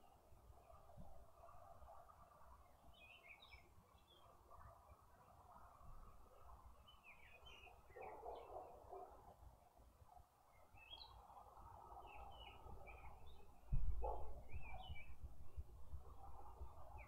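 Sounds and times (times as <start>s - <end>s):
small birds chirping: 2.6s - 9.0s, 10.5s - 15.6s.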